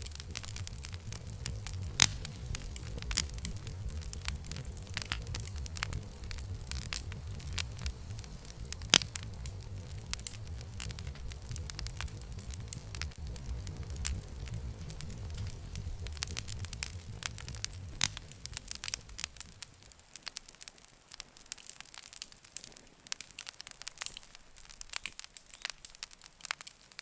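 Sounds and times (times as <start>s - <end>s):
low rumble: 0.0s - 20.0s
campfire crackling and popping: 0.0s - 27.0s.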